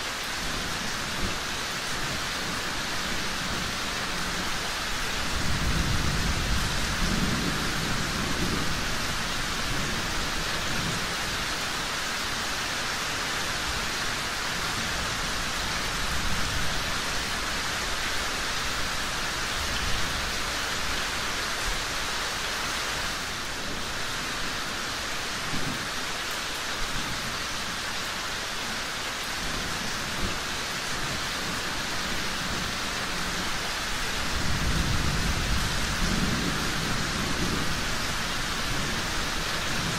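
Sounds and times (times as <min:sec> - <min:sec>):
steady rain hiss: 0:00.0 - 0:39.9
rolling thunder: 0:34.2 - 0:38.0.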